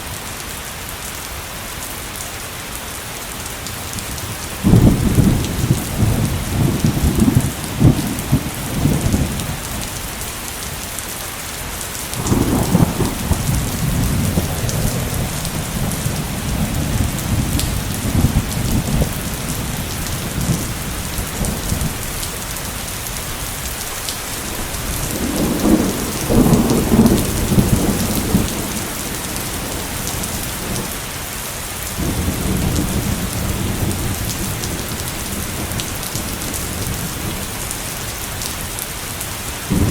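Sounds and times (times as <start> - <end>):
heavy rain pouring: 0.0 - 39.9
thunder rumbling: 4.2 - 10.6, 12.2 - 31.0, 32.0 - 38.8, 39.7 - 39.9.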